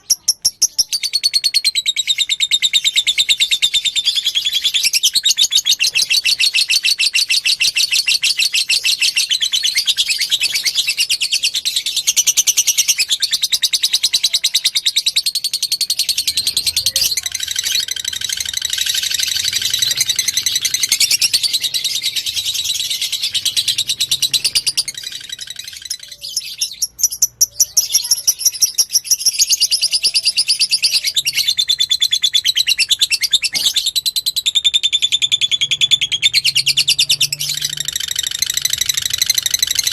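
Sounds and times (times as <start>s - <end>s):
lovebird chattering song: 0.0s - 39.9s.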